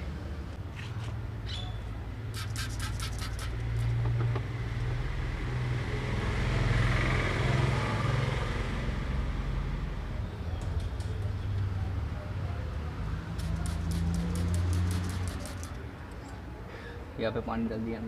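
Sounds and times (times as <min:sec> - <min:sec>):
water splashing hiss: 0:02.3 - 0:04.0, 0:13.4 - 0:15.8
quick clicks: 0:02.3 - 0:04.3, 0:13.4 - 0:15.8.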